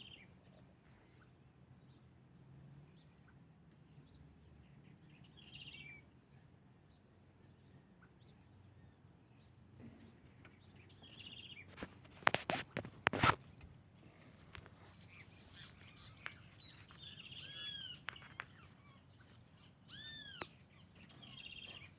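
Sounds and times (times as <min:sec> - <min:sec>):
birds trilling and whistling: 0:07.8 - 0:21.9.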